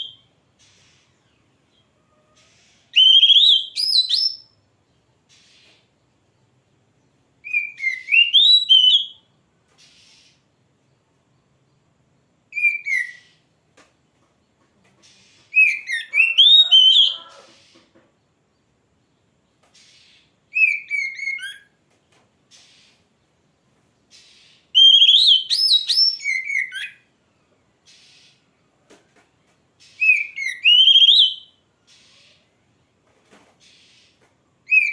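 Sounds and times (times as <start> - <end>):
bird singing whistled phrases: 2.9 - 4.5, 7.4 - 9.2, 12.5 - 13.4, 15.5 - 17.4, 20.5 - 21.7, 24.8 - 27.0, 30.0 - 31.6, 34.7 - 34.9.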